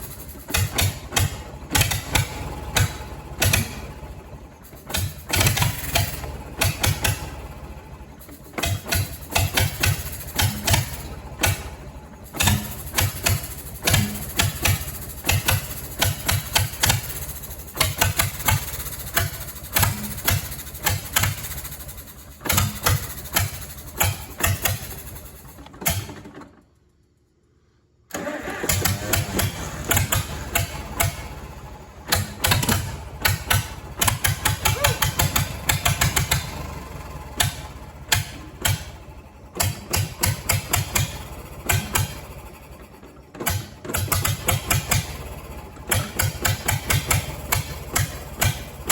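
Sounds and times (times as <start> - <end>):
tractor engine cranking: 0.0 - 48.9.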